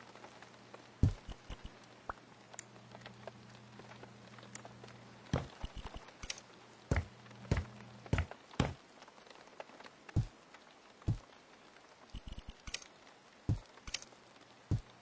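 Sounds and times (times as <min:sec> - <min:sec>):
faint steady hum: 0:00.0 - 0:09.0, 0:10.0 - 0:15.0
loud thuds: 0:01.0 - 0:01.3, 0:05.4 - 0:05.9, 0:06.9 - 0:08.8
objects being handled: 0:05.4 - 0:08.8.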